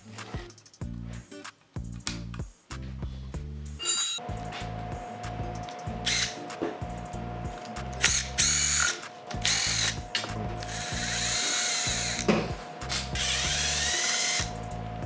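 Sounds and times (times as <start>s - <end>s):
background music with beat: 0.0s - 15.0s
power tool motor whine: 3.9s - 15.0s.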